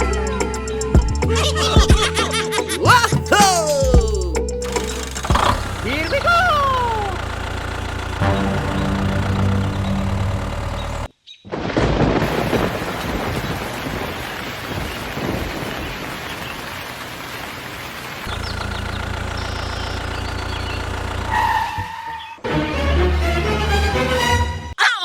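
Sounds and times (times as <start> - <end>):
low engine-like hum: 4.6 - 11.1, 18.3 - 21.6.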